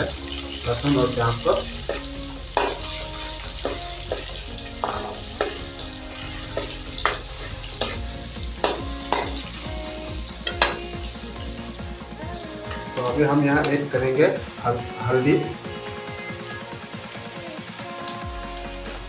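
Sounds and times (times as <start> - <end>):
metal ladle scraping pan: 0.0 - 11.0
onion sizzling in hot oil: 0.0 - 19.0.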